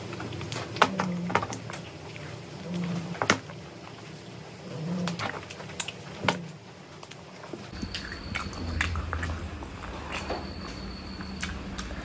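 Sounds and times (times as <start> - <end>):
chewing and biting food: 7.7 - 12.0.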